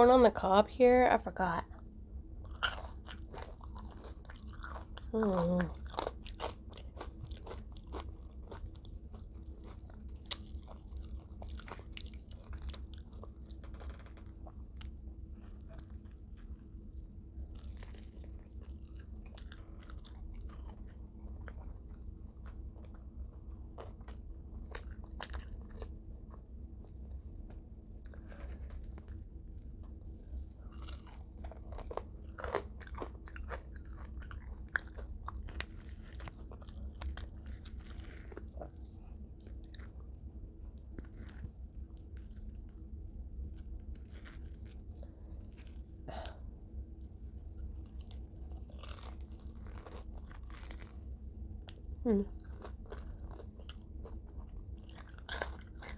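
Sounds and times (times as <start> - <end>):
low electrical hum: 0.0 - 55.9
chewing crispy fried chicken: 1.4 - 55.9.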